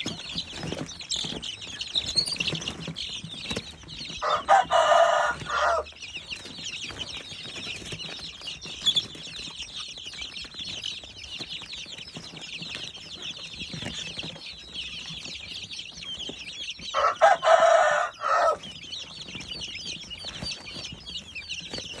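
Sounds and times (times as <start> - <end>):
chicks peeping: 0.0 - 22.0
adult chicken call: 4.2 - 5.9, 16.9 - 18.7.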